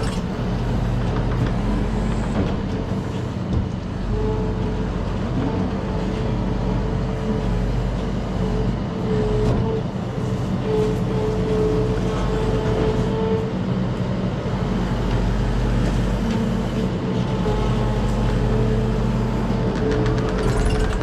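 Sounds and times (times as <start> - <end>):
steady whine: 0.0 - 1.1.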